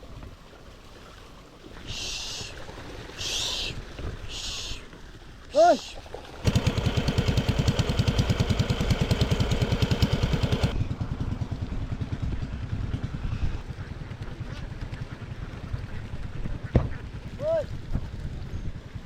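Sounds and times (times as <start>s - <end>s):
small engine chugging: 5.6s - 19.0s.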